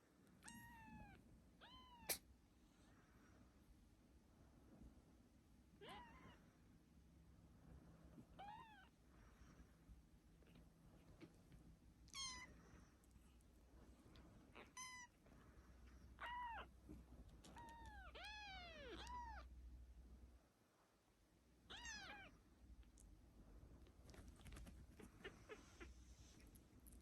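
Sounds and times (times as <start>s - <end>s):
kitten meowing: 0.4s - 2.2s, 12.1s - 12.5s, 14.6s - 15.1s, 16.2s - 16.7s, 17.5s - 19.5s, 21.7s - 22.3s.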